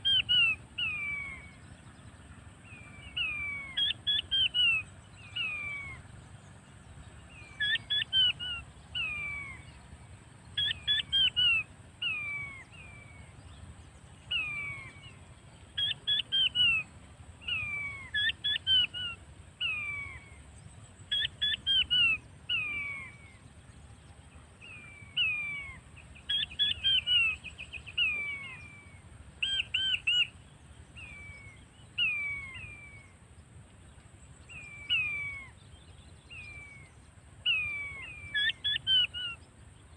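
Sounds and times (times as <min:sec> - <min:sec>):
quail whistled calls: 0:00.0 - 0:01.6, 0:02.7 - 0:06.1, 0:07.3 - 0:09.8, 0:10.5 - 0:13.4, 0:14.3 - 0:20.4, 0:21.0 - 0:23.4, 0:24.6 - 0:30.4, 0:31.0 - 0:33.2, 0:34.5 - 0:35.6, 0:36.3 - 0:39.4.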